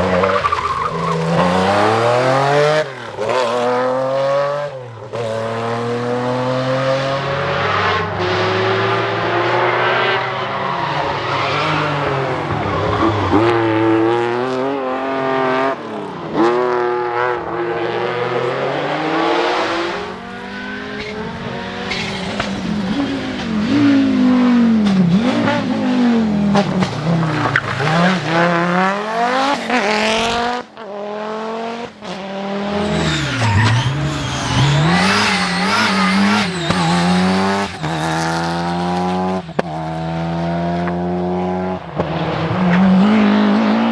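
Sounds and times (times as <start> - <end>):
tyre squeal on loose surface: 0.0 - 3.6, 19.5 - 24.4, 32.7 - 39.2
rally car engines revving: 0.0 - 43.9
exhaust pops: 19.7 - 25.6, 32.7 - 39.8.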